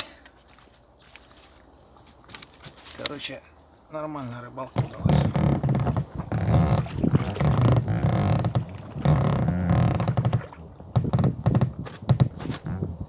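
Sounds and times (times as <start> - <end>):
oarlocks creaking: 4.3 - 13.0
oars knocking on boat: 4.7 - 13.0.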